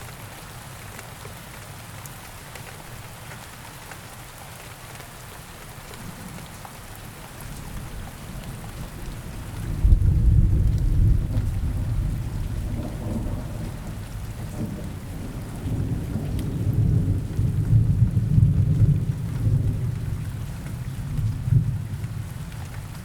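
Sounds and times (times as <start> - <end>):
steady rain falling: 0.0 - 23.0
low thunder rumbling: 7.7 - 23.0.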